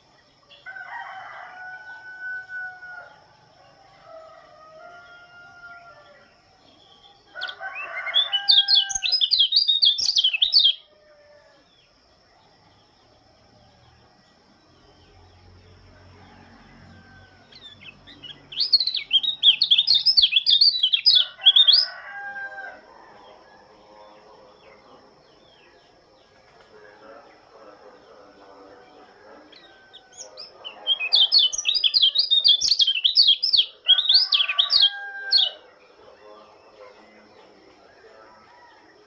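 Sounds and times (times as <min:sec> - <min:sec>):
bird warbling song: 0:05.0 - 0:10.9, 0:17.0 - 0:22.0, 0:24.0 - 0:38.8.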